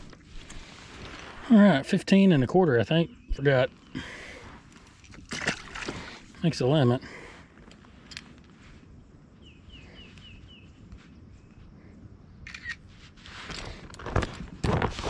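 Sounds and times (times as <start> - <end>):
bird chirping: 2.1 - 4.5, 9.3 - 11.6.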